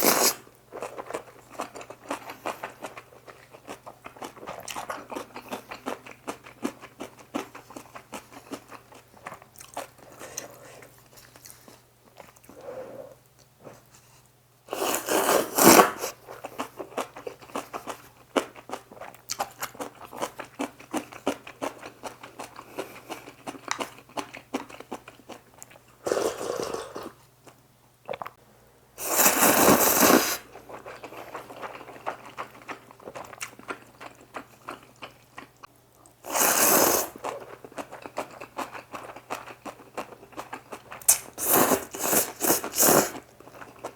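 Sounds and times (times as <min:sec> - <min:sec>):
loud slurps: 0:00.0 - 0:00.4, 0:14.7 - 0:16.1, 0:26.0 - 0:27.1, 0:29.0 - 0:30.5, 0:36.3 - 0:37.2, 0:41.4 - 0:43.2
wet chewing with mouth clicks: 0:00.0 - 0:12.7, 0:15.6 - 0:25.8, 0:29.3 - 0:36.2.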